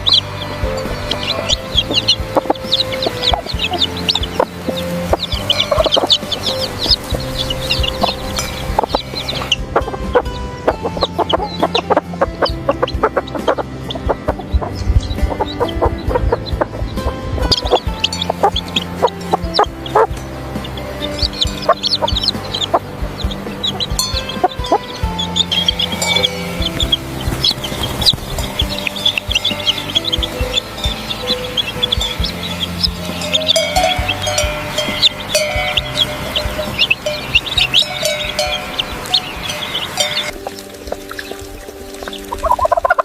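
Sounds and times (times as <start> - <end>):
background music: 0.0 - 43.0
chickens clucking and calling: 0.0 - 43.0.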